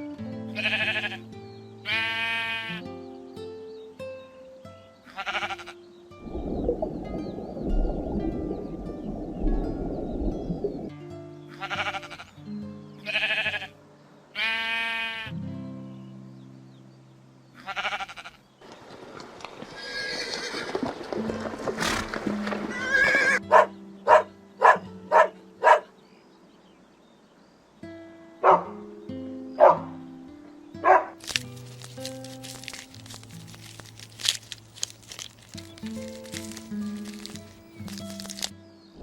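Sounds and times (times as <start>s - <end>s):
bleating farm animal calls: 0.5s - 2.9s, 5.0s - 5.9s, 11.5s - 12.4s, 13.0s - 15.4s, 17.5s - 18.4s
background music: 21.5s - 25.9s, 28.4s - 39.0s.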